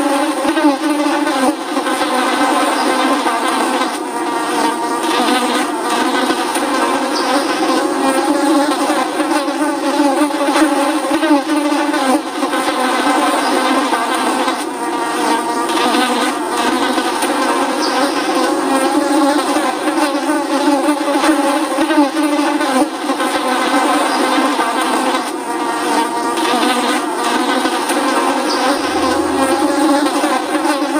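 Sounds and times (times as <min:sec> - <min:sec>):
flies buzzing: 0:00.0 - 0:30.9.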